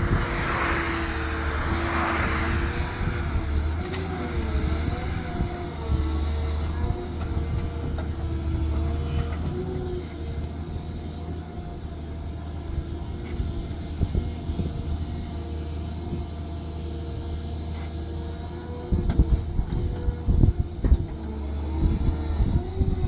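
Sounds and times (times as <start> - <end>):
excavator diesel engine droning: 0.0 - 23.0.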